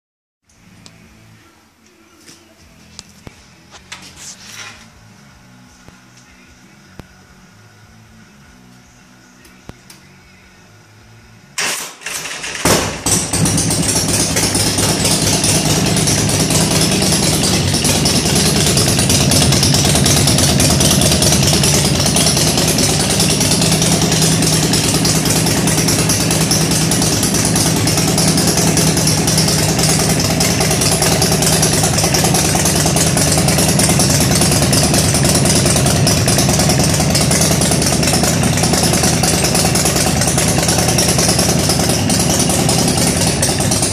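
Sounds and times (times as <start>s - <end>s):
motorcycle engine starting and running: 11.4s - 43.9s.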